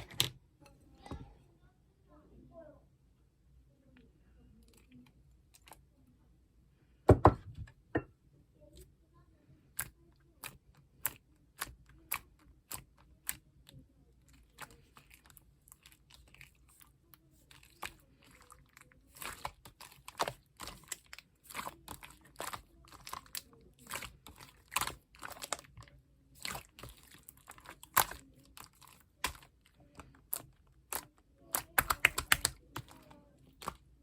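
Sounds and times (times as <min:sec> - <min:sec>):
slime clicking and popping: 0:30.3 - 0:32.9.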